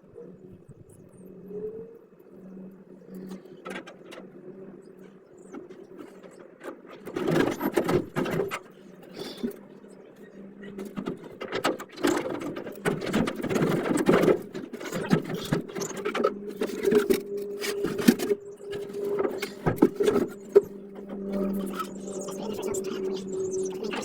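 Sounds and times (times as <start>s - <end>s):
metallic clicks and scraping: 10.7s - 22.1s.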